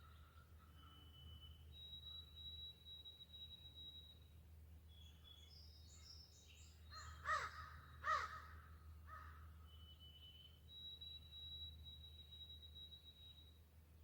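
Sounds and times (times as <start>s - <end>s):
crow cawing: 7.2s - 9.4s.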